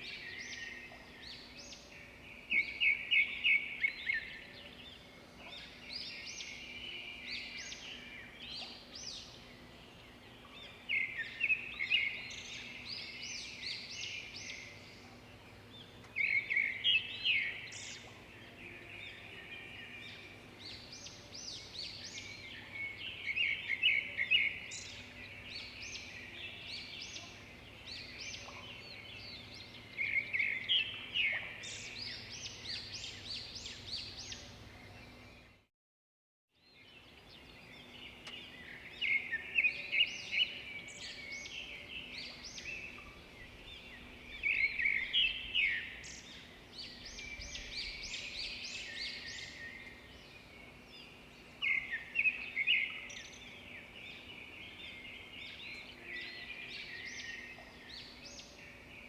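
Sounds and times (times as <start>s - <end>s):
quiet bird twittering: 36.6s - 59.0s.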